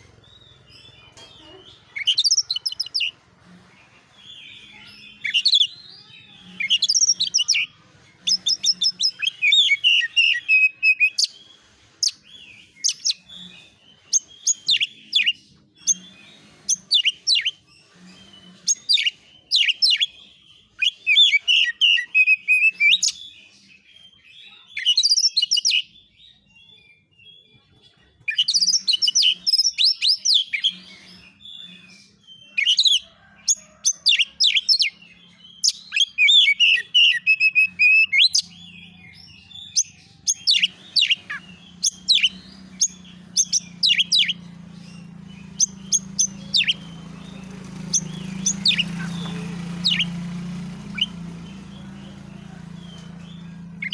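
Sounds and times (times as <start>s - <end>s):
bird singing sharp chirps: 34.2s - 53.9s.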